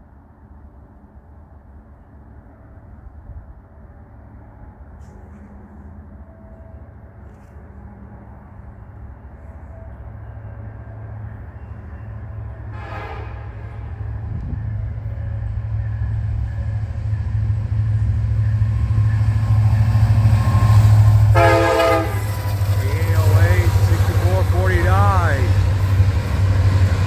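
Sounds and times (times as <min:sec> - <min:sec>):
diesel locomotive engine drone: 0:00.0 - 0:27.0
train horn: 0:12.6 - 0:14.1, 0:20.5 - 0:25.8.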